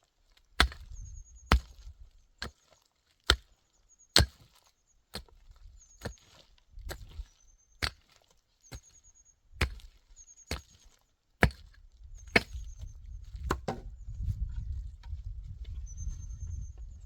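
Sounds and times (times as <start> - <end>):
axe chopping wood: 0.6 - 2.5, 3.2 - 3.5, 4.2 - 5.4, 6.0 - 7.2, 7.8 - 8.9, 9.6 - 9.9, 10.5 - 10.8, 11.4 - 13.9.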